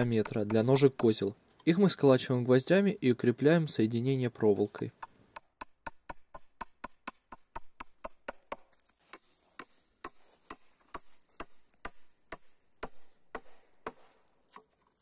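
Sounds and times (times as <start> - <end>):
hammer driving nails into wood: 5.0 - 14.6.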